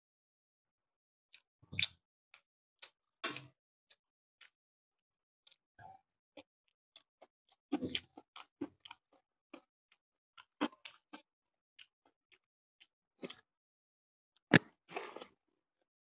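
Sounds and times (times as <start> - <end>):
close chewing with mouth smacks: 1.3 - 3.0, 7.0 - 13.4.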